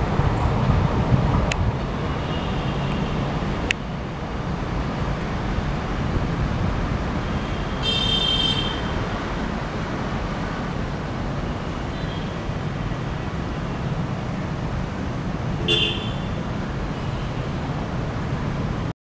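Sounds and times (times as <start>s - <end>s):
passenger train rumbling: 0.0s - 7.9s.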